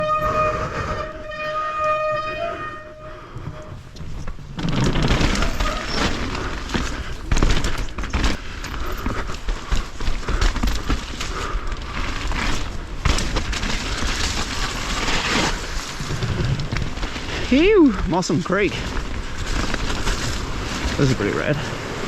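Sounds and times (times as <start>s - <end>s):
bike tyre noise: 0.0s - 22.0s
bike knocks and rattles: 3.4s - 22.0s.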